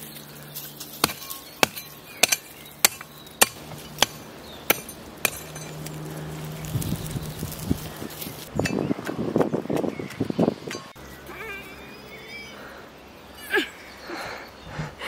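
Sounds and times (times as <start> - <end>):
hand tool striking: 0.8 - 6.0.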